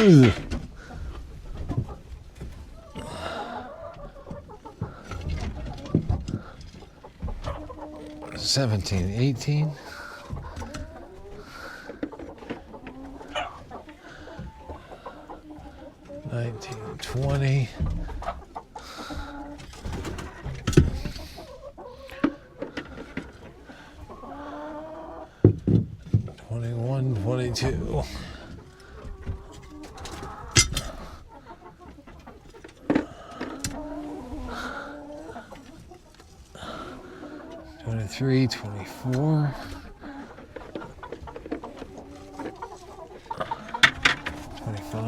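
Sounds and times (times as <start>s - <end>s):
hens cooing: 0.0s - 25.7s, 27.0s - 45.0s
chickens clucking: 0.0s - 45.0s
knocks and rustling: 4.3s - 7.6s, 19.6s - 21.2s, 25.4s - 26.4s, 43.7s - 44.5s.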